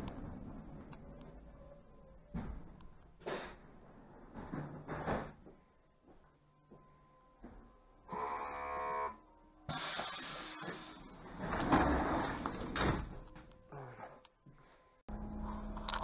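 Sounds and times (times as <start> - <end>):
train hissing and rumbling: 9.7 - 11.2.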